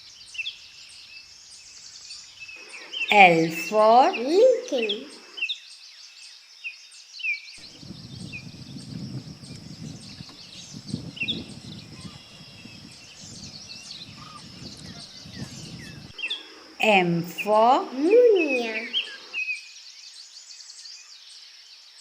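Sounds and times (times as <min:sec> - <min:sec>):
birds chirping: 0:00.0 - 0:06.1, 0:07.6 - 0:19.5
low rumbling noise: 0:07.6 - 0:16.8
high-pitched outdoor background: 0:16.2 - 0:19.3.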